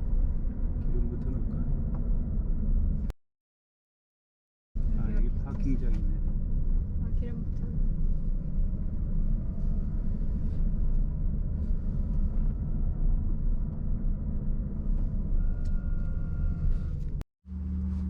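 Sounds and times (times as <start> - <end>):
car cabin road and engine rumble: 0.0 - 3.1, 4.8 - 18.0
smooth steady hum: 6.1 - 18.0.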